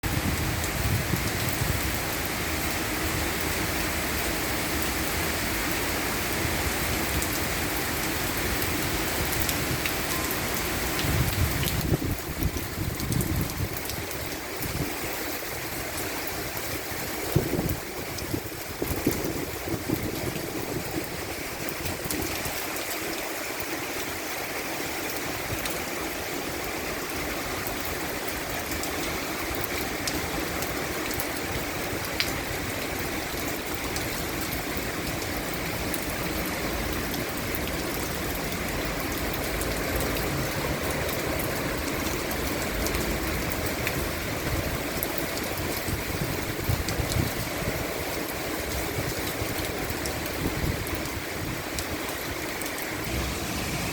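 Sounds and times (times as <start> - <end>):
heavy rain falling: 0.0 - 53.9
sharp raindrop impacts: 51.8 - 53.9.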